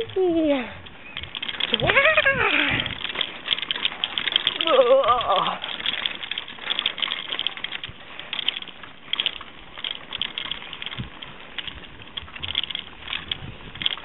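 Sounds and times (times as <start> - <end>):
bicycle rattling on rough road: 0.0 - 14.0.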